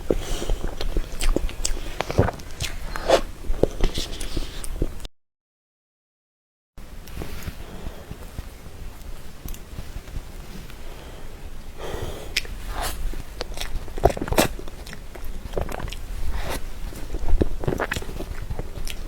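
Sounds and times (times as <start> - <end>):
lip smacks: 0.0 - 5.0, 12.3 - 19.0
wet chewing: 0.0 - 5.0, 11.8 - 19.0.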